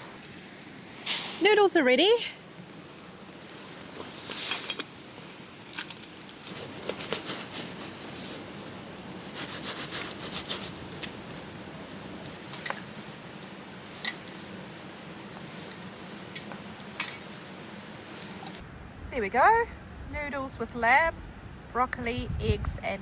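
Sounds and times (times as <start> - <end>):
utensil scraping a cooking pot: 6.5 - 11.2.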